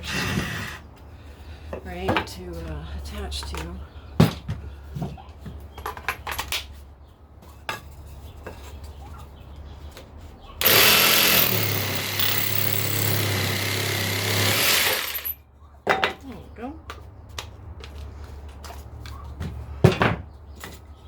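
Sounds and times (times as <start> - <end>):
power drill driving screws: 10.6 - 15.4
small parts clicking and knocking: 10.6 - 15.4.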